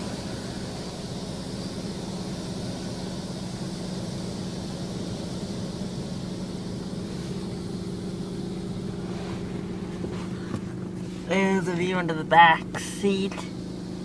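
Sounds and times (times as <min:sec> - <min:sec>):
car wash motor hum: 0:00.0 - 0:14.0
water spray hissing: 0:01.0 - 0:11.5.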